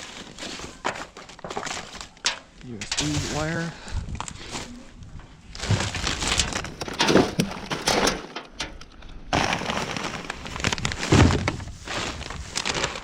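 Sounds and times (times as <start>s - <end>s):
items clicking and knocking: 0.7s - 3.2s, 5.1s - 13.0s
plastic bag crinkling: 5.6s - 8.1s, 9.3s - 13.0s.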